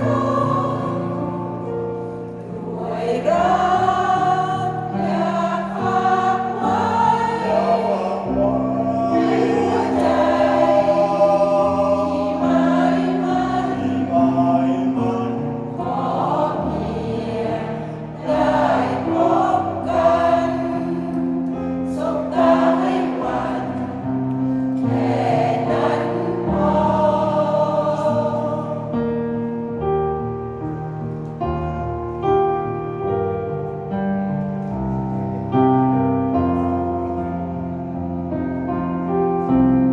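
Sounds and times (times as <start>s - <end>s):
choir singing: 0.0s - 29.5s
piano accompaniment: 0.0s - 39.9s.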